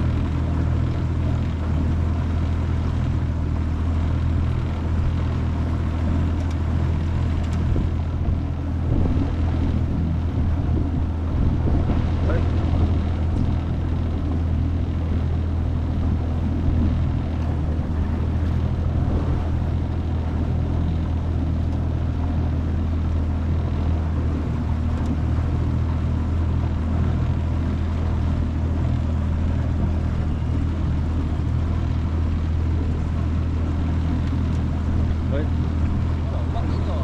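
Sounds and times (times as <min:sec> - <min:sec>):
outboard motor running: 0:00.0 - 0:37.0
water noise: 0:00.0 - 0:37.0
wind noise: 0:07.4 - 0:15.3, 0:16.5 - 0:20.4.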